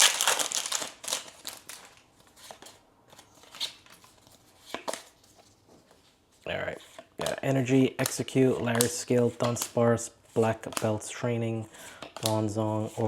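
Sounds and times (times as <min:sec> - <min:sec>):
foil crinkling: 0:00.0 - 0:02.1
trading cards snapping and rustling: 0:07.2 - 0:09.8, 0:10.6 - 0:11.0.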